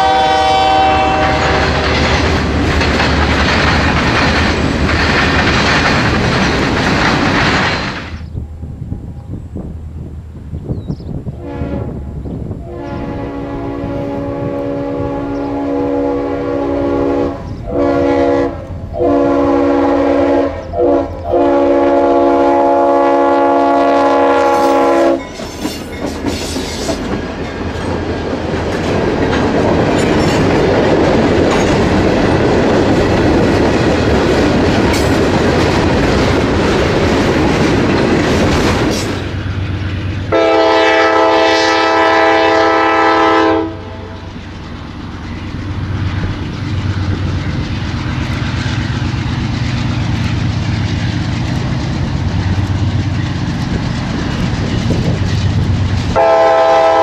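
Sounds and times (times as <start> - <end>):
locomotive air horn blasts: 0.0 - 2.1, 11.4 - 12.0, 12.6 - 25.2, 40.3 - 44.2, 56.2 - 57.0
train rumble and wheel noise: 0.0 - 57.0.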